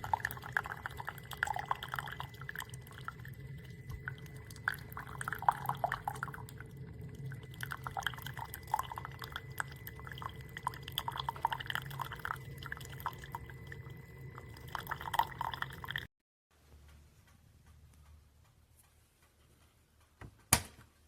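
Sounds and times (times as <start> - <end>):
coffee dripping into a cup: 0.0 - 16.1
coffee machine humming: 0.0 - 16.1.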